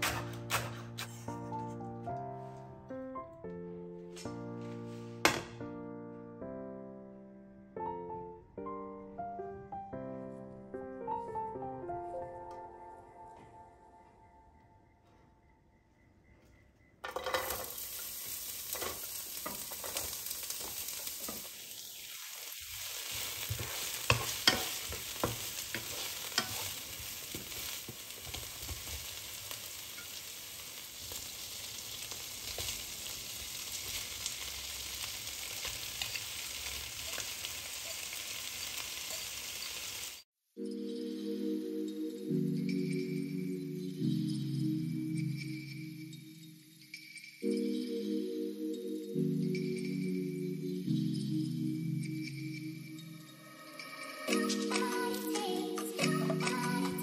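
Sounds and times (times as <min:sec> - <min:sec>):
spatula scraping a pan: 0:00.0 - 0:01.7, 0:22.8 - 0:29.2
food sizzling in a pan: 0:17.1 - 0:40.3, 0:53.4 - 0:57.0.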